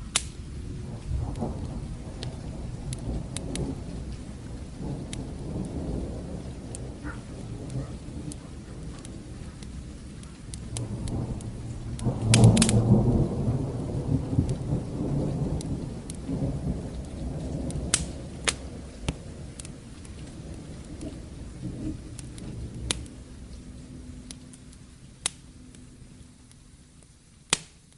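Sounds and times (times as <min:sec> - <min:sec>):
deep thunder rumble: 0:00.0 - 0:26.4
steady rain: 0:00.0 - 0:27.9
wood fire crackling and popping: 0:00.0 - 0:27.9.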